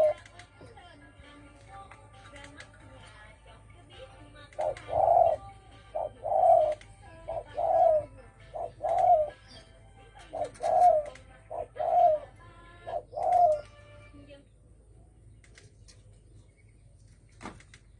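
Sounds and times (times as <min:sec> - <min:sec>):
dove cooing: 0:00.0 - 0:00.3, 0:04.5 - 0:13.7.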